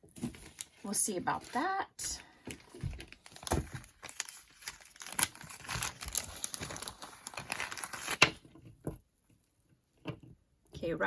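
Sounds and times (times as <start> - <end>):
packaging crinkling and rustling: 0.2 - 1.8, 2.5 - 8.7.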